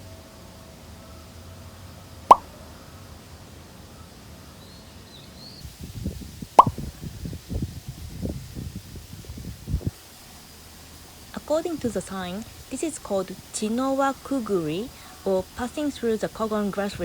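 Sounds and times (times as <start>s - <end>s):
bubble pop sound effects: 6.6s - 6.8s.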